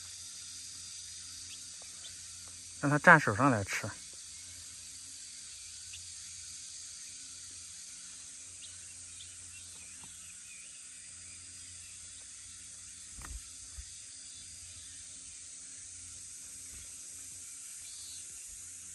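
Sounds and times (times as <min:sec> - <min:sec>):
small ticks: 0:00.0 - 0:02.8, 0:07.4 - 0:10.4, 0:12.0 - 0:14.0
faint chirps: 0:00.0 - 0:18.9
steady high hiss: 0:00.0 - 0:18.9.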